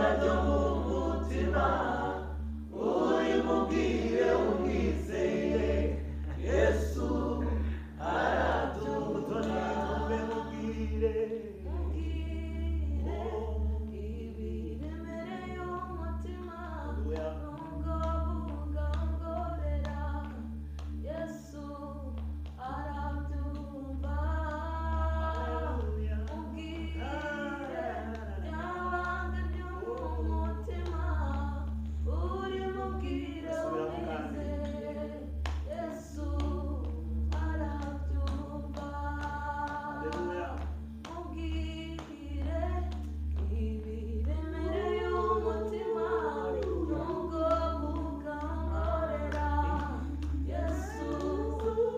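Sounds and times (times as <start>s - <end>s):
choir singing: 0.0s - 12.0s, 12.9s - 14.6s, 25.0s - 31.0s, 32.2s - 40.6s, 44.5s - 51.9s
low hum: 0.0s - 51.9s.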